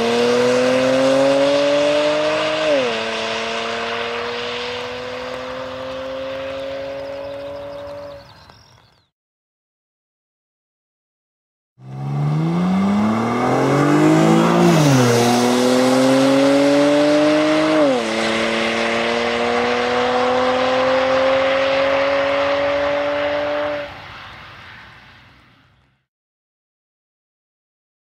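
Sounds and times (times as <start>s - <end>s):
car engine accelerating through gears: 0.0s - 8.5s, 11.8s - 23.9s.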